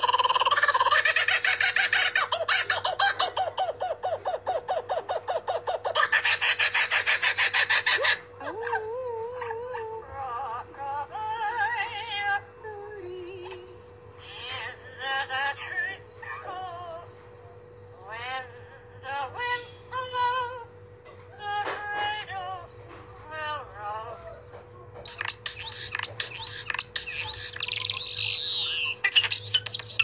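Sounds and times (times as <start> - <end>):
fast repeated bird calls: 0.0 - 8.3, 25.0 - 30.0
warbling bird song: 0.0 - 21.5, 22.1 - 30.0.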